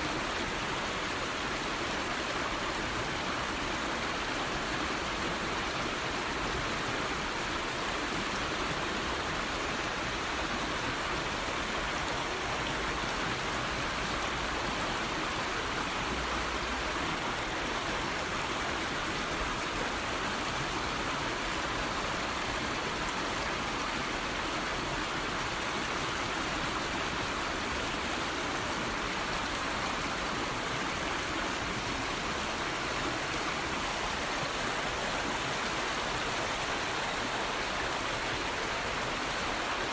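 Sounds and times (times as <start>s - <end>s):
falling water rushing: 24.2s - 39.9s.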